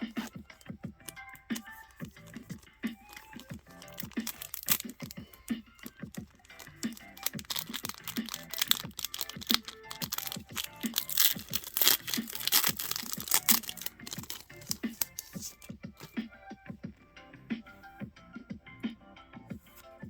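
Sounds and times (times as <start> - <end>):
background music with steady beat: 0.0 - 20.0
foil wrapper tearing and crinkling: 1.6 - 15.7.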